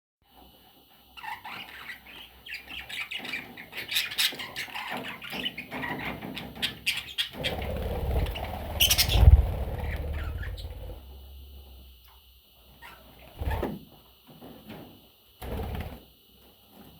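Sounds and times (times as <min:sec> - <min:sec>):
budgerigars chirping: 0:01.2 - 0:11.0
low close rumble: 0:07.5 - 0:11.8.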